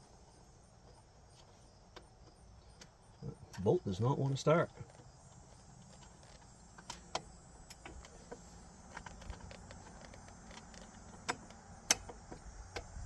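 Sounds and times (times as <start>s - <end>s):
small metallic clicks and taps: 4.7s - 13.0s.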